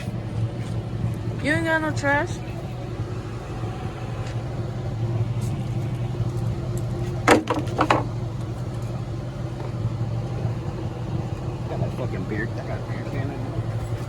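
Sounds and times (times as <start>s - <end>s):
engine idling: 0.0s - 14.0s
sharp knocks: 7.2s - 8.1s.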